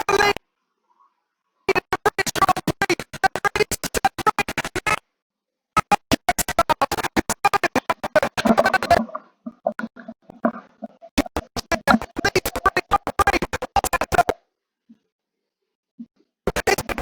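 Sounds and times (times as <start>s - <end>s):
choppy streamed race audio: 5.8s - 9.0s.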